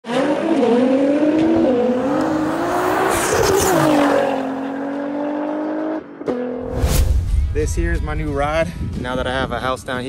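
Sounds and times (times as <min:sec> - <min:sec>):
race car engine revving: 0:00.0 - 0:06.6.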